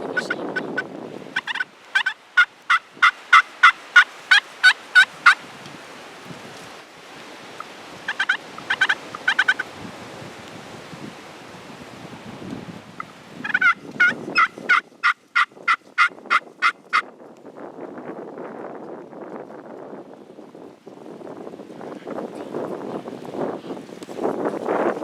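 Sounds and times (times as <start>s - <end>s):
wind rumbling on microphone: 0.0s - 25.0s
wild turkey yelping: 1.4s - 5.4s, 8.1s - 9.7s, 13.0s - 17.0s.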